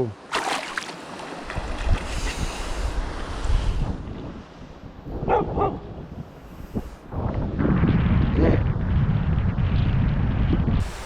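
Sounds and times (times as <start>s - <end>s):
wind buffeting microphone: 1.4s - 11.0s
dog barking: 5.2s - 5.8s.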